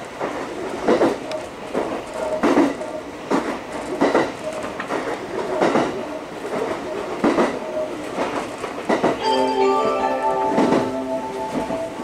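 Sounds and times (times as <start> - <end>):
train running rumble: 0.0 - 9.2, 10.3 - 12.0
wheels clacking over rail joints: 0.2 - 9.2.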